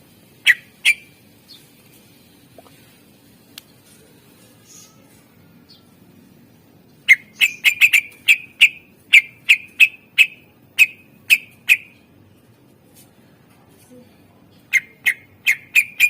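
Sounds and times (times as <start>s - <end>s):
bird whistling sharp notes: 7.1s - 11.9s.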